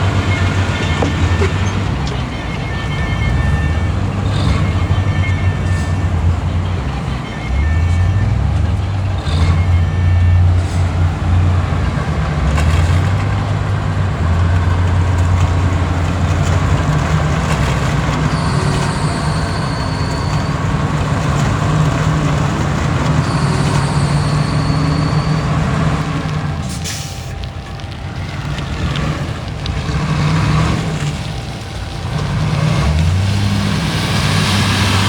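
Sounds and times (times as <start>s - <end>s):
heavy diesel engine running hard: 0.0s - 35.0s
thin high squeal: 18.2s - 21.5s, 23.2s - 25.9s.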